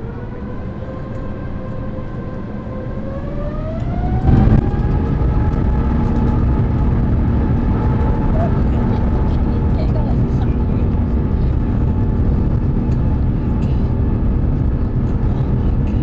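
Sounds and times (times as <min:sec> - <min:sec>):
jet engine whine rising: 0:00.0 - 0:16.0
loud rumble: 0:03.2 - 0:16.0.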